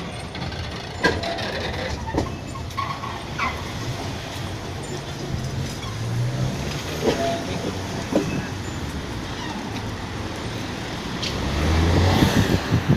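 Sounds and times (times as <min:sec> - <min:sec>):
steady vehicle noise: 0:00.0 - 0:12.9.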